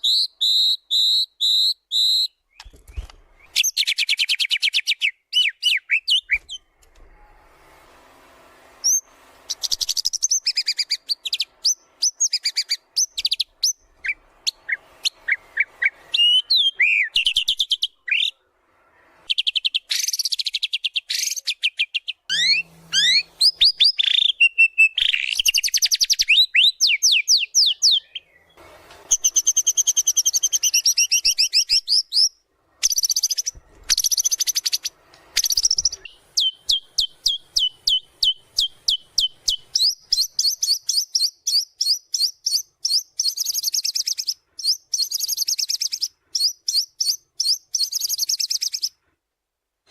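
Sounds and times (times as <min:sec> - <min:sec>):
songbird singing trills and whistles: 0:00.0 - 0:06.6, 0:08.8 - 0:18.4, 0:19.3 - 0:49.0
rapid repeated bird notes: 0:29.1 - 0:48.9.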